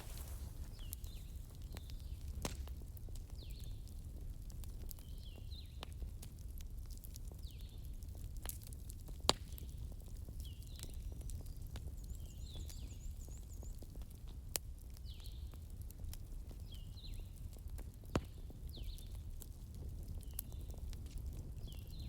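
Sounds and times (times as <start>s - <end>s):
burning logs crackling: 0.0s - 22.0s.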